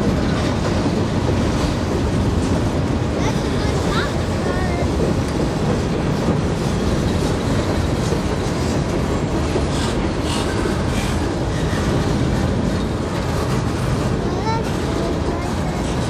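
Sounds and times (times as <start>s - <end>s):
steel wheels rumbling on rail: 0.0s - 16.0s.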